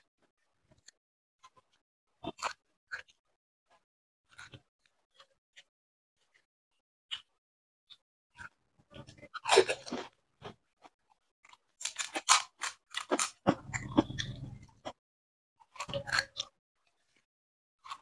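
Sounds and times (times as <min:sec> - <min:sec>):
wet chewing: 0:07.9 - 0:15.0, 0:15.6 - 0:17.2.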